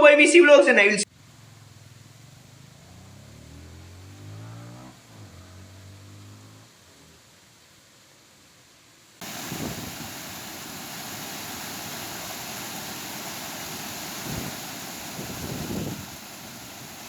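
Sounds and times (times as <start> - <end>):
wind buffeting microphone: 9.2 - 10.3, 14.2 - 16.3
heavy rain pouring: 9.2 - 17.0.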